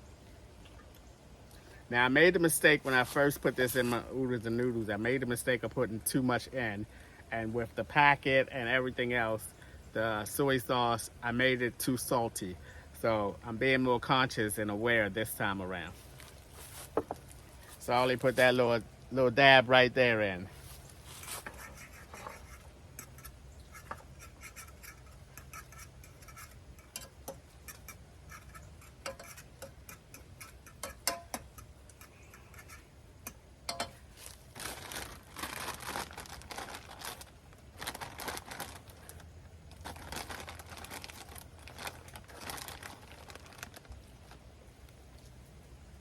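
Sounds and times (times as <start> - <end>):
low steady hum: 0.0 - 46.0
rustling and scraping: 2.2 - 4.6, 15.8 - 18.8, 20.4 - 45.6
utensils clicking and knocking: 23.0 - 34.0.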